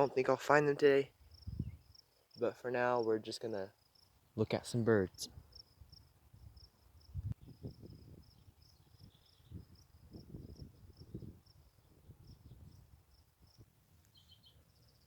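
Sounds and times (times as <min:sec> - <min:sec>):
high-pitched insect chirping: 0:01.0 - 0:04.2, 0:05.1 - 0:13.6.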